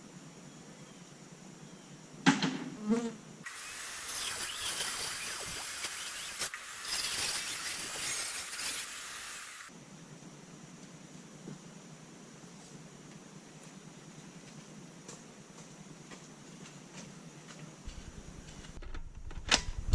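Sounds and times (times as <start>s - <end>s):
small power tool buzzing: 2.9s - 9.7s.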